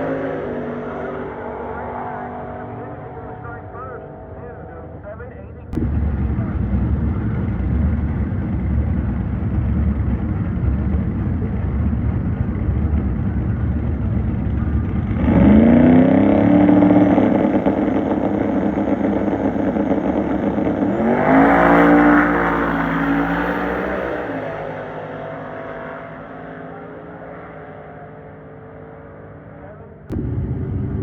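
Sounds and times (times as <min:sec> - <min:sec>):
car engine rumbling and revving: 0:00.0 - 0:31.0.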